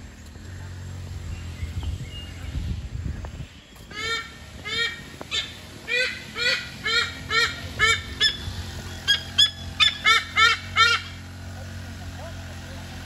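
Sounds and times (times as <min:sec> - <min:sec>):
bird calling loudly: 0:03.5 - 0:11.3.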